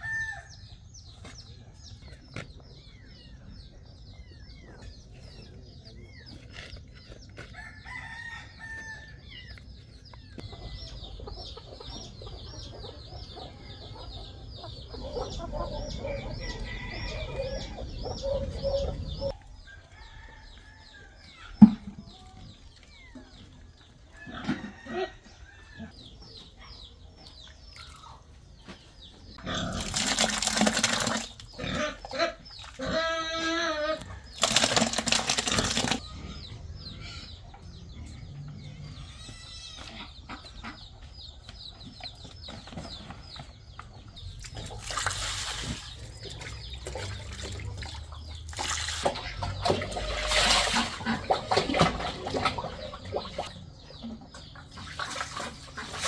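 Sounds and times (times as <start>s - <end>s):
chickens clucking: 0.7s - 56.0s.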